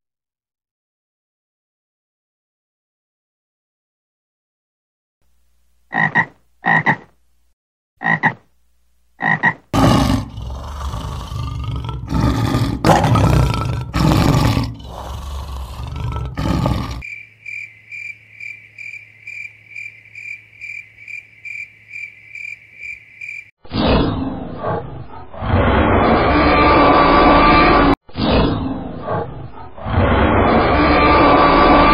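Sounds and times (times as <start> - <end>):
frog croaking: 5.9 - 7.2, 8.0 - 8.4, 9.2 - 23.5
lion roaring: 9.7 - 17.1.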